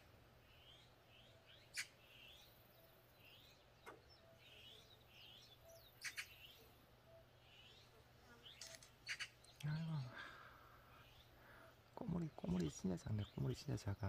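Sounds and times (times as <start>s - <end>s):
small birds chirping: 0.0s - 14.0s
sharp clicks: 8.5s - 9.7s.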